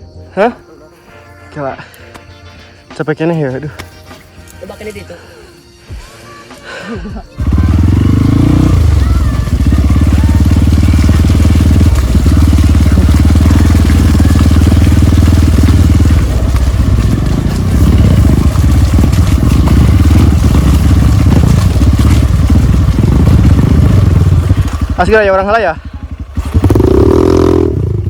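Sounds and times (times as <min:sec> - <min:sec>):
motorcycle engine running hard: 0:07.1 - 0:28.0.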